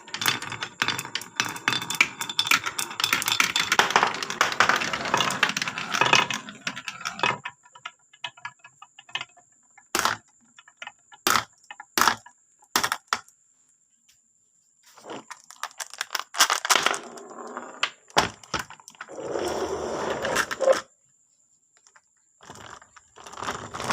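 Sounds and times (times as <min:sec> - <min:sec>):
marble rolling rumble: 0:00.0 - 0:11.1, 0:15.0 - 0:20.9, 0:22.4 - 0:23.9
marbles clacking down a track: 0:00.0 - 0:13.3, 0:15.3 - 0:20.8, 0:22.4 - 0:23.9.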